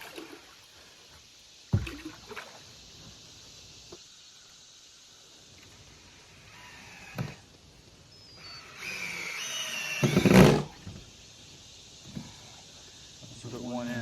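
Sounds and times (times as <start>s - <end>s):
power drill driving a screw: 8.4s - 10.7s.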